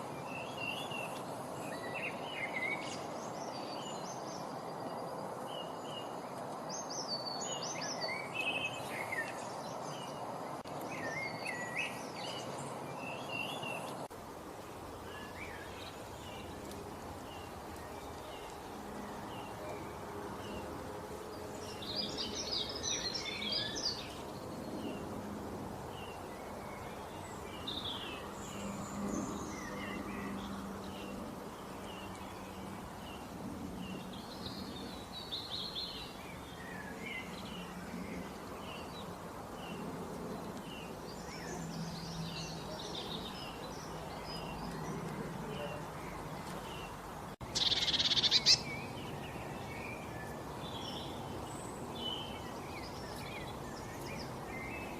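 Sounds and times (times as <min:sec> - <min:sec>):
outdoor background hiss: 0:00.0 - 0:54.9
songbirds chirping and trilling: 0:00.0 - 0:54.9.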